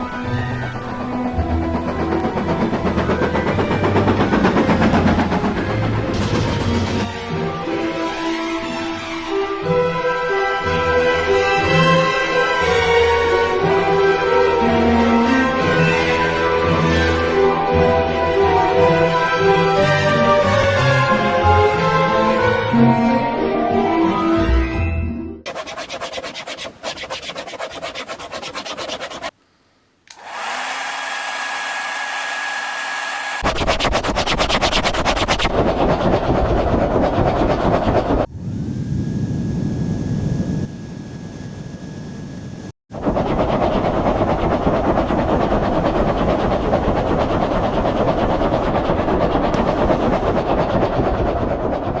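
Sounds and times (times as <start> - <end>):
rushing noise with fast rattle: 0.0 - 7.1, 25.5 - 29.3, 33.4 - 38.3, 42.9 - 52.0
hair dryer whine: 30.1 - 33.4.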